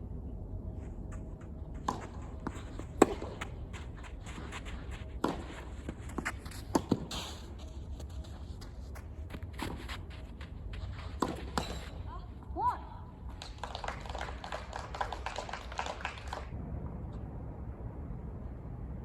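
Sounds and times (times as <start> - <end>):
tennis ball strikes and bounces: 1.1 - 7.4, 11.1 - 12.1.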